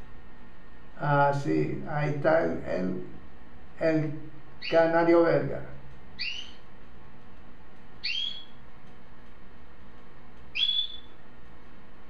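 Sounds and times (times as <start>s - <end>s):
canary whistled calls: 6.2s - 6.6s, 8.0s - 8.6s, 10.5s - 11.2s.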